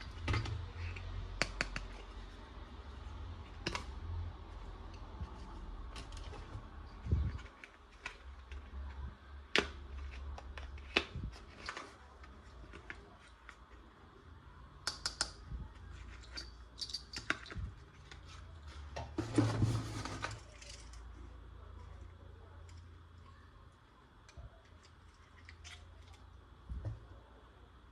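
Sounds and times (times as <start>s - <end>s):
plastic toy parts clicking: 16.1s - 17.6s.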